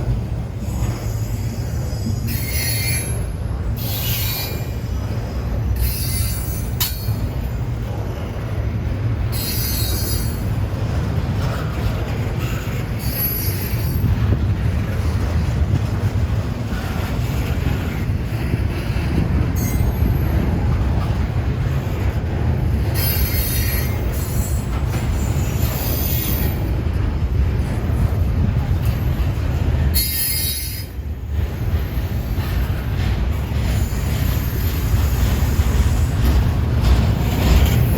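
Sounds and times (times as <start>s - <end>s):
freight train rumbling: 0.0s - 37.9s
train wheels squealing: 0.6s - 7.5s, 9.3s - 10.6s, 12.3s - 14.3s, 19.5s - 20.8s, 22.8s - 26.8s, 29.9s - 32.8s, 33.6s - 37.9s.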